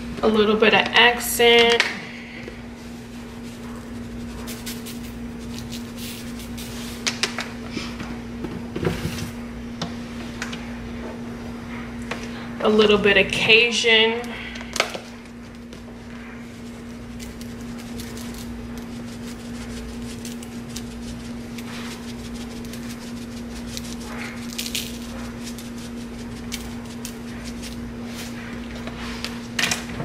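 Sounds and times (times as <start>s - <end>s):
spice shaker rattling: 17.0s - 28.3s.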